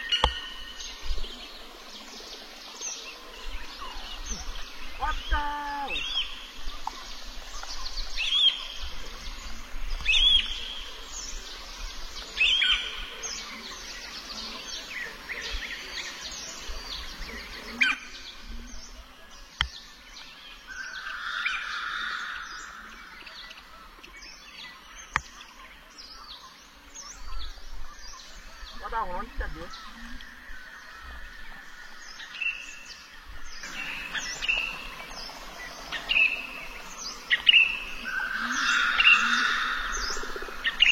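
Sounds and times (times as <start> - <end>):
birds chirping and singing: 0.0 - 40.9
loud bird call: 35.8 - 40.9.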